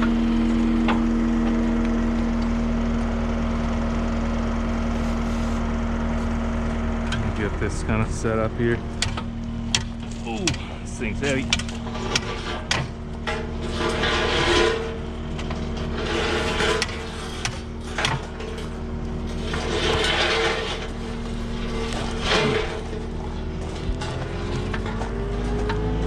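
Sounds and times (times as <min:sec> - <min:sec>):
diesel engine idling: 0:00.0 - 0:26.0
metal clanks: 0:07.1 - 0:26.0
steel forks scraping: 0:09.9 - 0:25.6.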